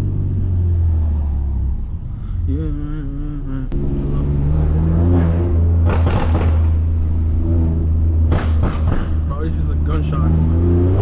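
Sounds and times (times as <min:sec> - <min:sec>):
loud exhaust pops and cracks: 0:05.8 - 0:06.8, 0:08.2 - 0:09.3.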